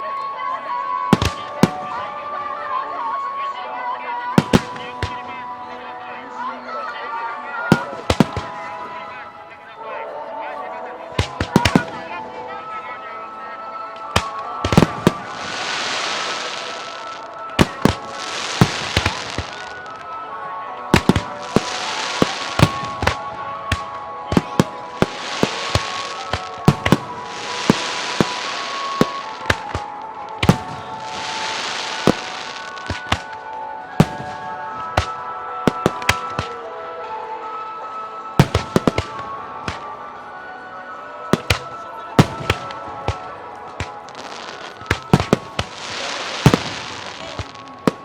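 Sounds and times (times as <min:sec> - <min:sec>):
fireworks bursting with sharp bangs: 0:01.1 - 0:02.3, 0:04.4 - 0:05.7, 0:07.7 - 0:09.2, 0:11.2 - 0:12.5, 0:13.9 - 0:36.7, 0:38.4 - 0:40.4, 0:41.2 - 0:48.0
fireworks hissing and crackling: 0:07.7 - 0:09.2, 0:11.2 - 0:12.2, 0:14.0 - 0:20.3, 0:20.9 - 0:36.6, 0:38.4 - 0:40.0, 0:41.3 - 0:48.0.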